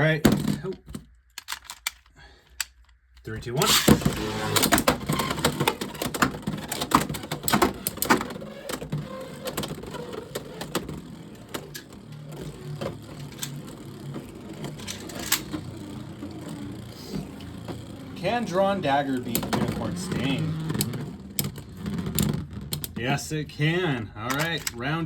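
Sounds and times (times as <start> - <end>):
spinning tops whirring: 3.6 - 23.0.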